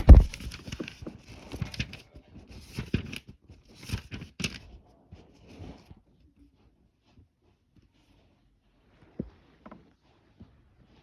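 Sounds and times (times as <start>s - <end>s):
packaging crinkling: 0.0s - 1.0s.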